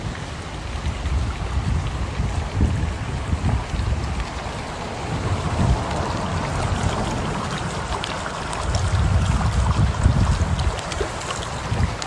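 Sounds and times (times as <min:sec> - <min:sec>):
rushing floodwater: 0:00.0 - 0:12.0
wind buffeting microphone: 0:00.0 - 0:12.0.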